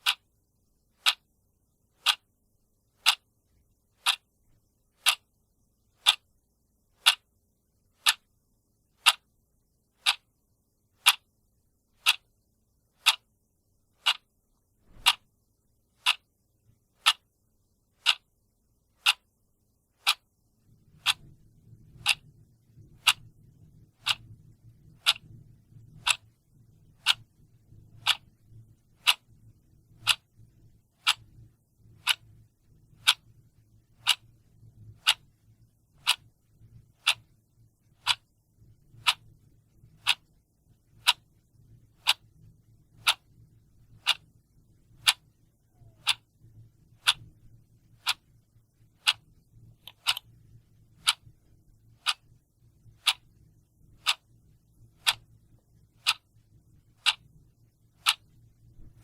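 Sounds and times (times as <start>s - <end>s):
clock ticking: 0.0s - 0.3s, 0.9s - 1.3s, 2.0s - 2.3s, 2.9s - 3.3s, 4.0s - 4.3s, 5.0s - 5.3s, 6.0s - 6.3s, 7.0s - 7.3s, 8.0s - 8.3s, 9.0s - 9.3s, 10.0s - 10.3s, 11.0s - 11.3s, 12.0s - 12.3s, 12.9s - 13.3s, 13.9s - 14.3s, 14.9s - 15.2s, 16.0s - 16.3s, 17.0s - 17.3s, 18.0s - 18.3s, 19.0s - 19.4s, 20.0s - 20.3s, 20.9s - 26.3s, 26.9s - 37.4s, 38.0s - 38.3s, 38.9s - 44.3s, 45.0s - 51.4s, 52.0s - 53.4s, 54.0s - 55.4s, 56.0s - 56.4s, 57.0s - 57.3s, 58.0s - 59.0s
faint low hum: 0.0s - 59.0s.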